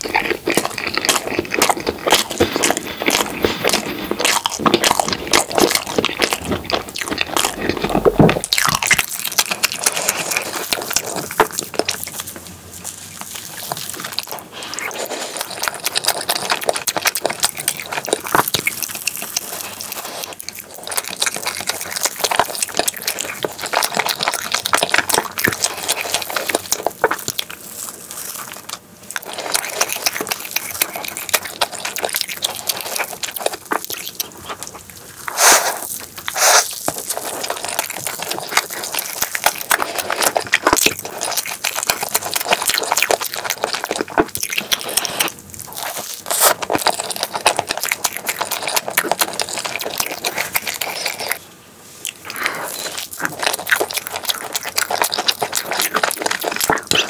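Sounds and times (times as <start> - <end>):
wet chewing and lip-smacking: 0.0 - 51.4, 52.0 - 57.0.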